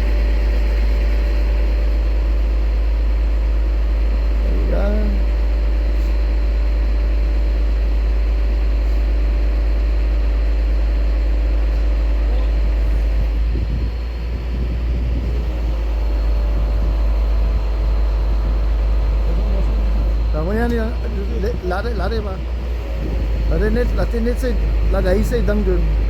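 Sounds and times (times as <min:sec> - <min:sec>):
crane engine rumbling: 0:00.0 - 0:26.0.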